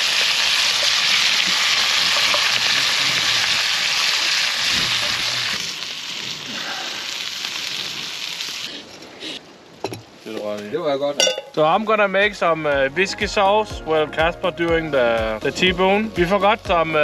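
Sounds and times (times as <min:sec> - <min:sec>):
food sizzling in pans: 0:00.0 - 0:09.4.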